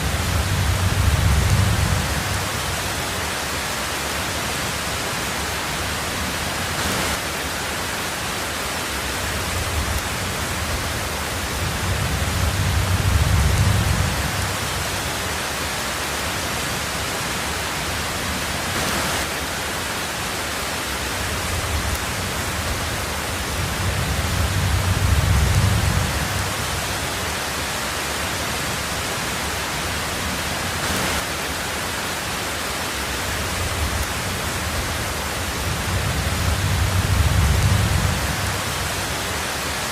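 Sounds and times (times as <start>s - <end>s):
rolling thunder rumbles: 0.0s - 3.2s, 9.2s - 15.0s, 21.2s - 27.2s, 33.4s - 39.3s
heavy rain on a tin roof: 0.0s - 39.9s.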